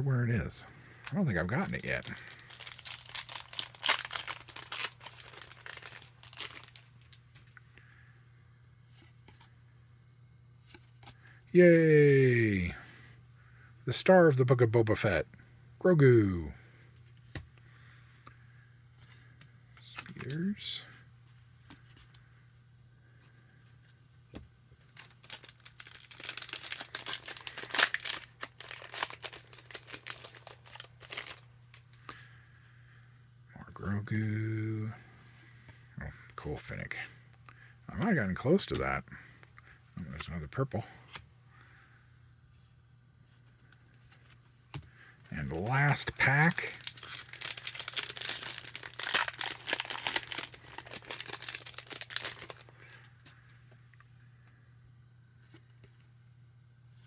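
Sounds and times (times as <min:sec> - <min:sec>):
foil wrapper tearing and crinkling: 0:01.0 - 0:07.2, 0:24.9 - 0:31.4, 0:45.5 - 0:52.7.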